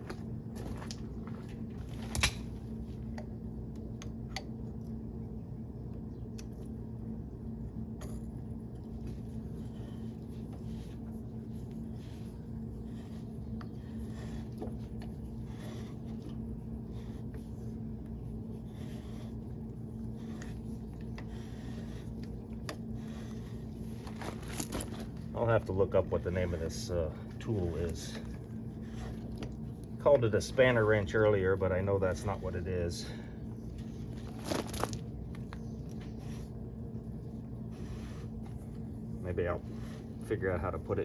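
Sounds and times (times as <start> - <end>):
low hum: 0.0 - 41.0.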